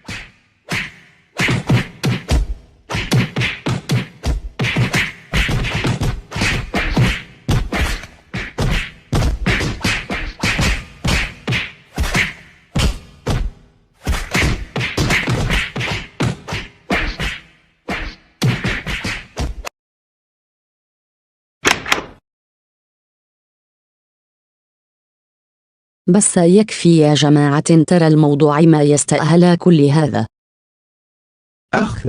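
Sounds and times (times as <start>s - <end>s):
punch and slap hits: 0.0s - 19.7s.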